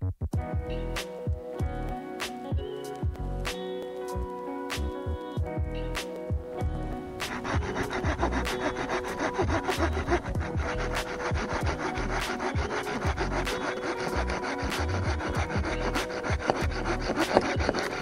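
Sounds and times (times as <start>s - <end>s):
hand saw cutting wood: 7.2s - 18.0s.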